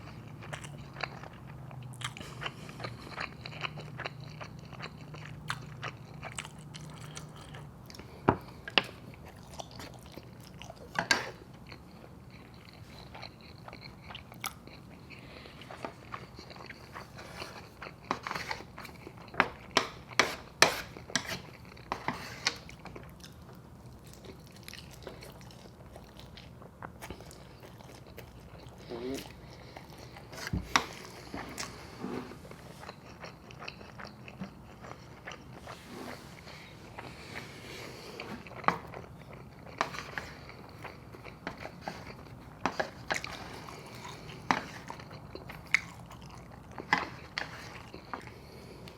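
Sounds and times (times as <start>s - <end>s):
chewing and biting: 0.0s - 20.2s, 32.8s - 35.8s, 37.9s - 48.9s.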